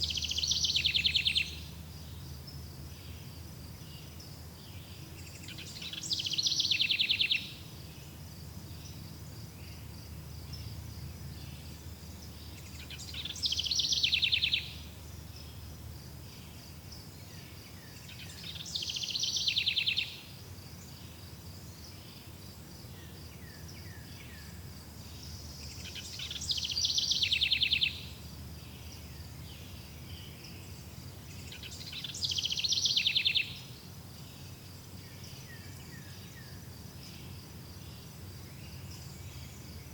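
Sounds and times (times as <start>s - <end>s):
songbird trilling: 0.0s - 1.7s, 5.2s - 7.7s, 12.3s - 14.9s, 18.0s - 20.2s, 25.2s - 33.8s
insects chirring: 0.0s - 39.9s.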